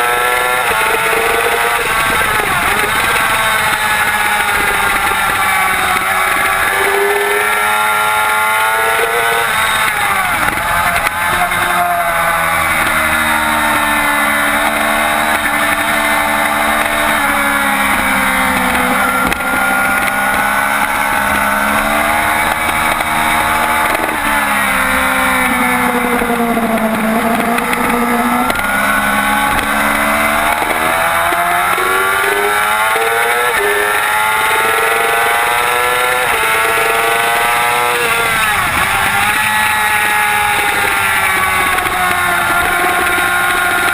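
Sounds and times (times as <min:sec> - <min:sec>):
motorcycle engine racing: 0:00.0 - 0:43.9.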